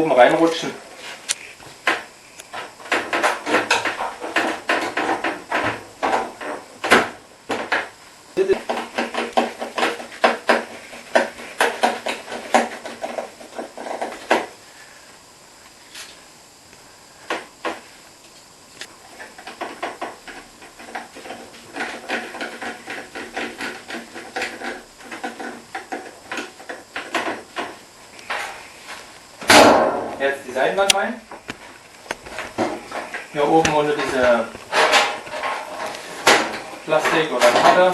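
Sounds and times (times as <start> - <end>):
panels knocking and rattling: 1.8 - 14.5, 19.4 - 27.8, 32.3 - 37.9.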